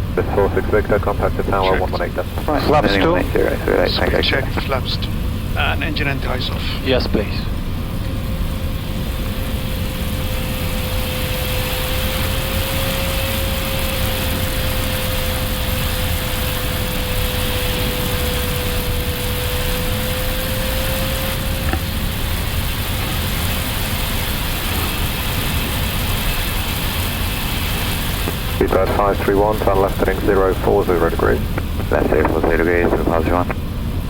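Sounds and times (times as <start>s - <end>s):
aircraft cockpit rushing noise: 0.0s - 34.0s
faint steady hum: 0.0s - 34.0s.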